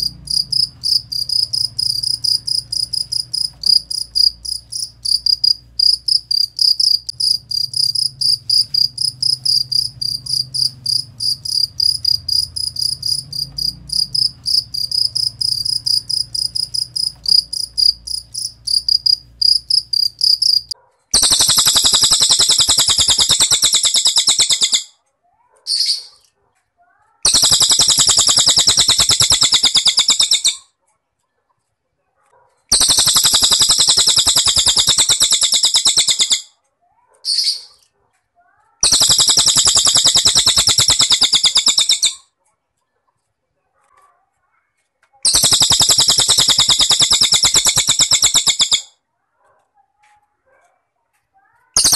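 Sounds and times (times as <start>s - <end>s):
cricket chirping: 0.0s - 24.8s, 27.3s - 30.6s, 32.7s - 36.4s, 38.8s - 42.2s, 45.3s - 48.9s
bird's rapid buzzy trills: 0.0s - 24.9s, 27.2s - 30.6s, 32.7s - 36.5s, 38.8s - 42.2s, 45.2s - 48.9s.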